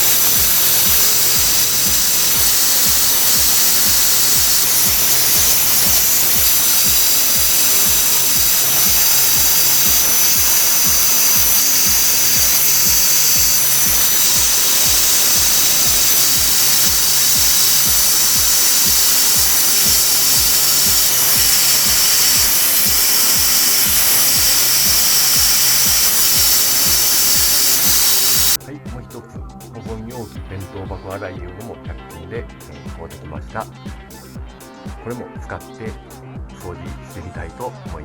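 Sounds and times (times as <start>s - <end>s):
low pulsing: 0.0s - 28.6s
steam cleaner hissing: 0.0s - 28.6s.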